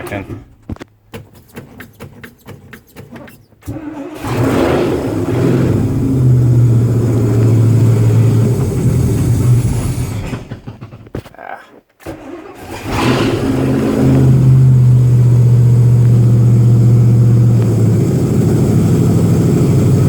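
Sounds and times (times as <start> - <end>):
starter motor cranking: 0.0 - 11.1, 12.0 - 20.0
car engine running: 3.6 - 11.1, 12.7 - 20.0.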